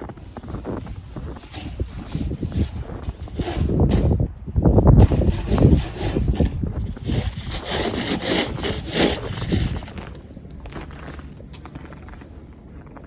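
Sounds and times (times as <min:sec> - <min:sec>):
scraping strokes: 0:00.2 - 0:10.2.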